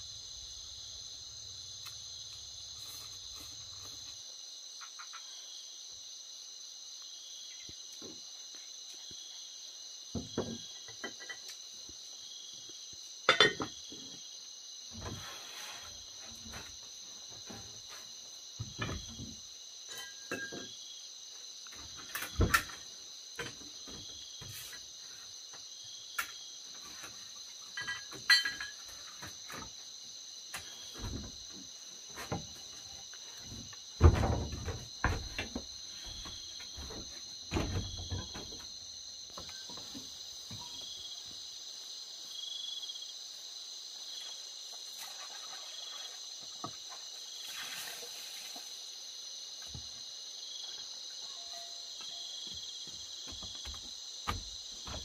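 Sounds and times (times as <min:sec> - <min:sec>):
crickets chirping: 0:00.0 - 0:55.0
thump: 0:10.1 - 0:10.7, 0:18.6 - 0:19.4, 0:30.6 - 0:32.6, 0:33.4 - 0:38.6
knocks and clatter of handling: 0:10.2 - 0:11.6, 0:18.6 - 0:20.7, 0:21.7 - 0:24.8, 0:26.2 - 0:29.8, 0:30.6 - 0:40.9.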